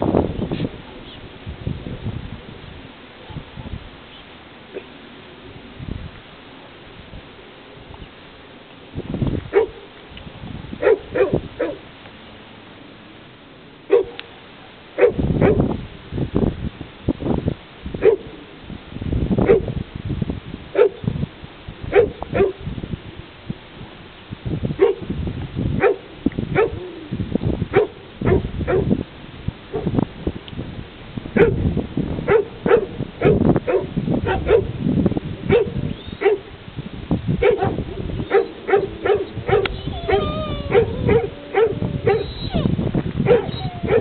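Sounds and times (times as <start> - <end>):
dog barking: 9.5 - 9.9, 10.8 - 11.8, 13.9 - 14.2, 15.0 - 15.6, 18.0 - 18.3, 19.5 - 19.7, 20.8 - 21.0, 21.9 - 22.6, 24.8 - 25.0, 25.8 - 26.0, 26.6 - 26.8, 27.7 - 28.9, 31.4 - 31.6, 32.3 - 34.7, 35.5 - 36.5, 37.4 - 44.0.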